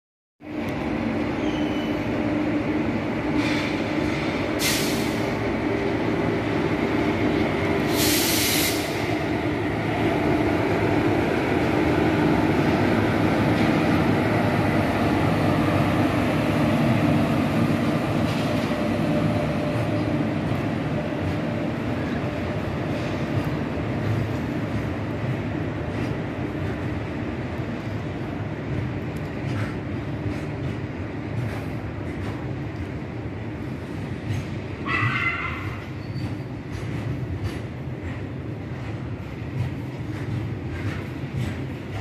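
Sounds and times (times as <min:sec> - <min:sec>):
freight train wheels rumbling: 0:00.4 - 0:42.0
brief high hisses: 0:07.9 - 0:09.1.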